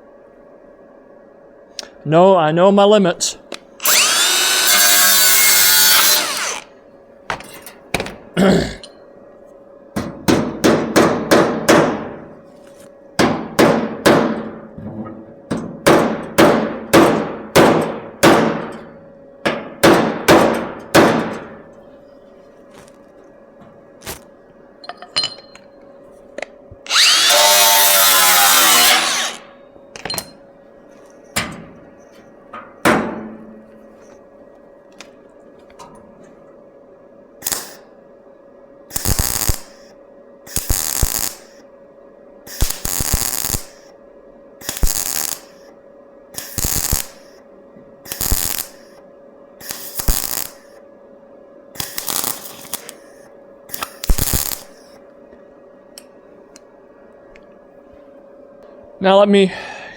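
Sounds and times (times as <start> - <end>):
power tool running: 3.8 - 6.7, 26.9 - 29.6
welder tack weld bursts: 3.8 - 6.7, 26.9 - 29.5, 37.4 - 37.8, 38.9 - 39.8, 40.5 - 41.6, 42.5 - 43.9, 44.6 - 45.7, 46.3 - 47.4, 48.0 - 49.0, 49.6 - 50.7, 51.8 - 54.9.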